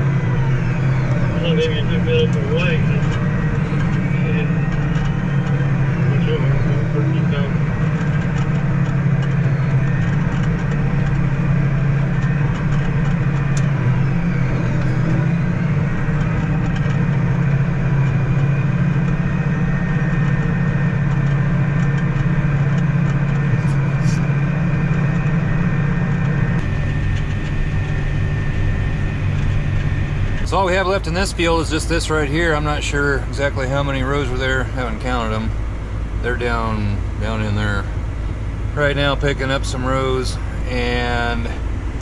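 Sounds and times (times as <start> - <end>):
harvester engine humming: 0.0 - 42.0.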